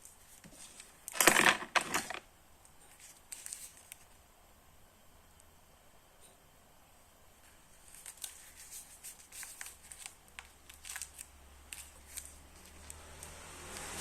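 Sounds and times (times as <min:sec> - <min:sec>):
packaging clicking and rustling: 0:00.0 - 0:02.2, 0:02.9 - 0:04.1, 0:07.8 - 0:13.9.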